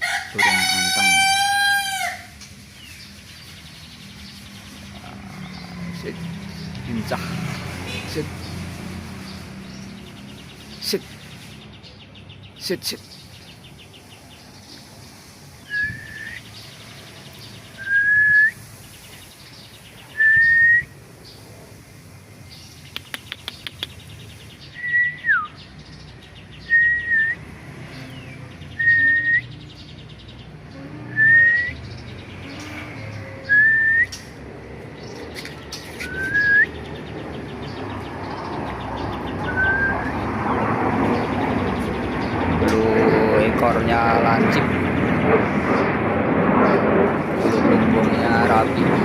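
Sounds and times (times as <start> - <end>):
rising whistled notes: 15.6 - 16.5, 17.8 - 18.6, 20.1 - 20.9, 33.5 - 34.2, 36.0 - 36.8, 39.5 - 40.3
quick clicks: 22.9 - 24.0.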